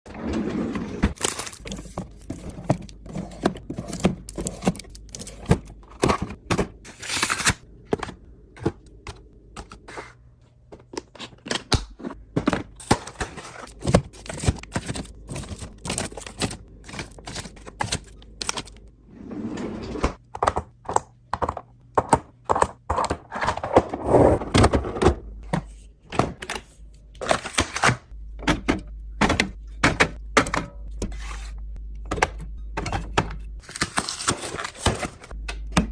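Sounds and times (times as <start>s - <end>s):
kitchen items clicking and knocking: 0.9s - 7.0s, 7.8s - 18.8s, 20.1s - 31.1s.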